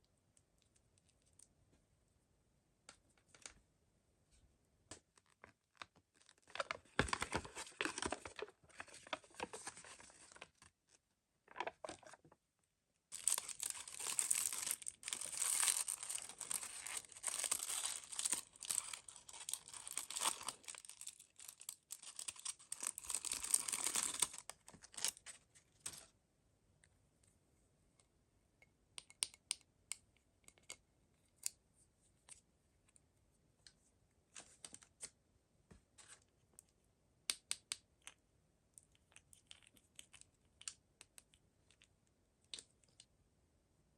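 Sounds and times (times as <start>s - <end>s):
toy packaging crackling: 6.1s - 10.6s, 13.1s - 25.2s.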